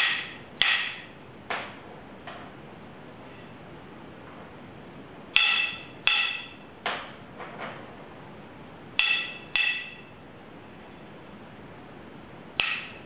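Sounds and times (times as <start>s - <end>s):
hard object struck with ring: 5.4s - 6.6s, 9.0s - 10.1s.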